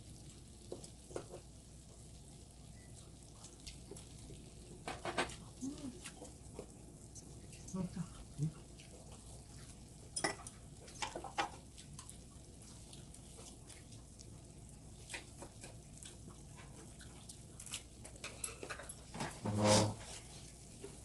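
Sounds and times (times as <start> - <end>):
utensils clicking against dishes: 18.2 - 19.3.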